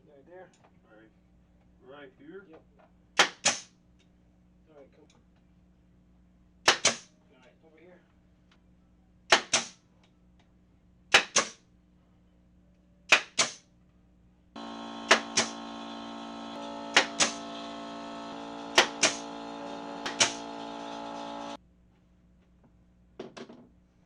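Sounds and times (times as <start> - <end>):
nail gun firing: 3.2 - 3.7, 6.7 - 7.1, 9.3 - 9.8, 11.1 - 11.6, 13.1 - 13.6, 14.7 - 21.5
motor hum: 14.6 - 21.6.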